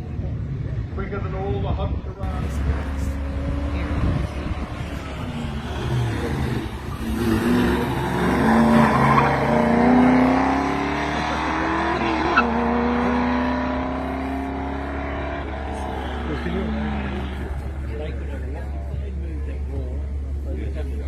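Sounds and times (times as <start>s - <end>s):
race car engine accelerating: 2.3s - 18.8s.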